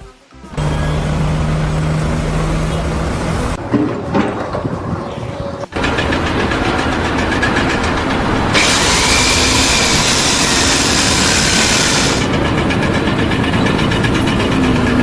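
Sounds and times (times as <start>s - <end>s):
machine engine running: 0.5s - 15.0s
loud hiss: 5.6s - 12.4s.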